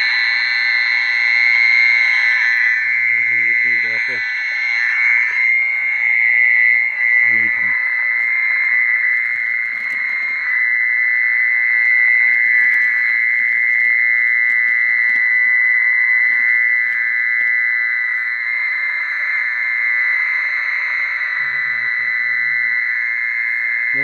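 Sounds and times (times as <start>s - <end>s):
high-pitched insect trill from loudspeaker: 0.0s - 24.0s.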